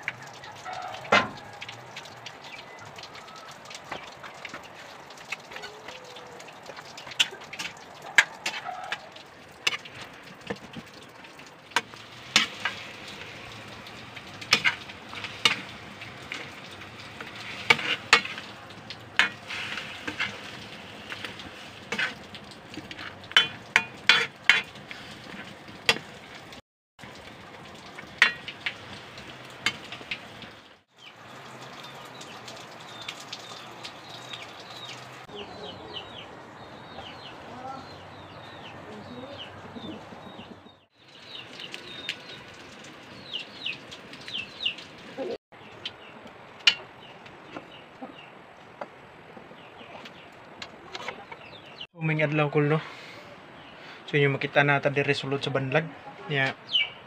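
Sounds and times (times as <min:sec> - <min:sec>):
wood fire popping and crackling: 0:00.0 - 0:35.3, 0:39.5 - 0:51.9
meat sizzling in a pan: 0:11.7 - 0:31.2.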